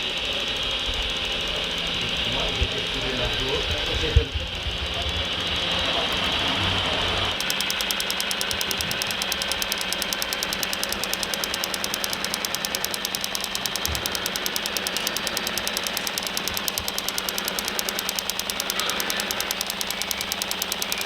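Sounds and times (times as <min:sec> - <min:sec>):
engine fast even knocking: 0:07.4 - 0:21.0.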